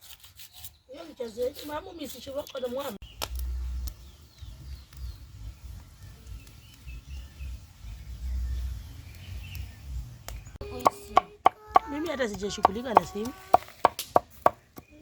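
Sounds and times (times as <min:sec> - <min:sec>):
low uneven rumble: 0:03.0 - 0:11.4.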